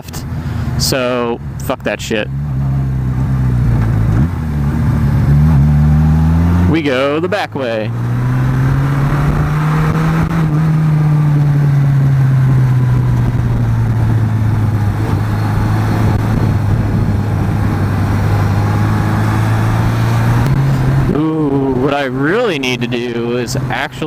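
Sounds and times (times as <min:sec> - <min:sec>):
motorcycle engine cruising: 0:00.0 - 0:24.0
wind rush: 0:07.9 - 0:21.1.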